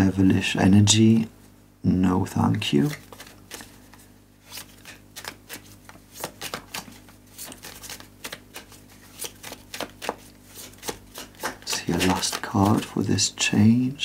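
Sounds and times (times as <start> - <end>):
cards shuffled by hand: 2.8 - 13.3.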